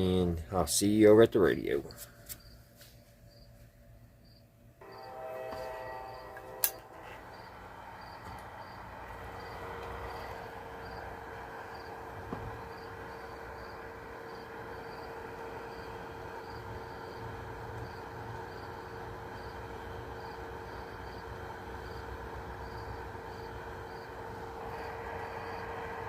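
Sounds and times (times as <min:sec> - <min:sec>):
background hum: 0:00.0 - 0:26.0
cricket chirping: 0:03.3 - 0:03.5, 0:04.2 - 0:05.4, 0:07.3 - 0:12.0, 0:12.6 - 0:19.6, 0:20.2 - 0:25.7
sharp click: 0:06.6 - 0:06.8.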